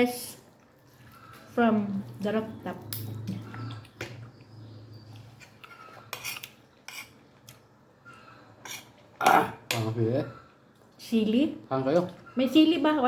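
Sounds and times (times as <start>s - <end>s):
utensils clinking on a plate: 8.7s - 10.0s.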